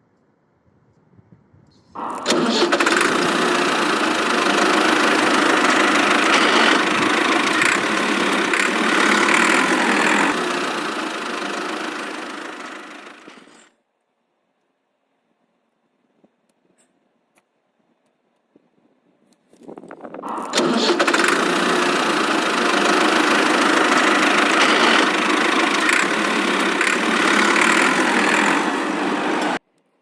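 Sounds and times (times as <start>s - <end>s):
motor running: 2.0s - 13.7s, 20.2s - 29.6s.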